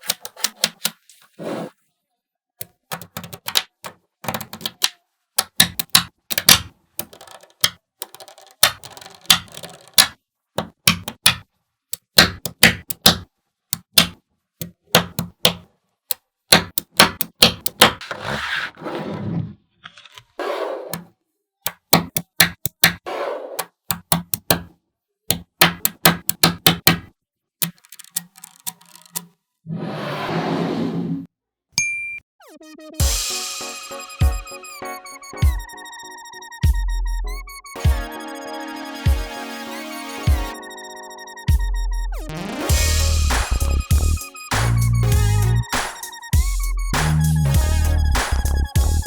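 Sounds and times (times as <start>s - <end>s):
magnetic balls clicking together: 2.6s - 11.4s, 12.0s - 15.6s, 16.5s - 17.9s, 21.7s - 23.0s, 23.6s - 24.7s, 25.3s - 29.3s.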